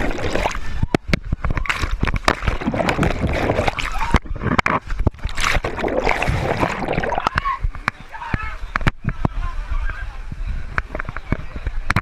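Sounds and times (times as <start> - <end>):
water sloshing and splashing: 0.0 - 7.8.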